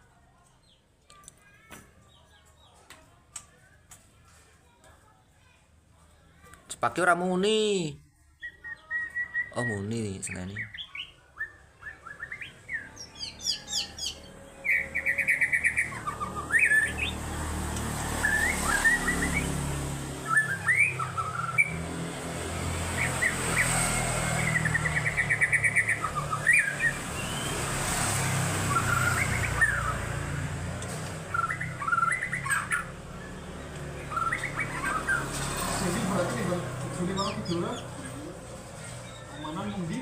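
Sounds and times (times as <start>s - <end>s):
bird singing whistled phrases: 8.4s - 9.9s, 10.6s - 17.2s, 18.2s - 19.6s, 20.2s - 21.8s, 24.6s - 27.6s, 31.3s - 32.9s, 34.0s - 35.3s.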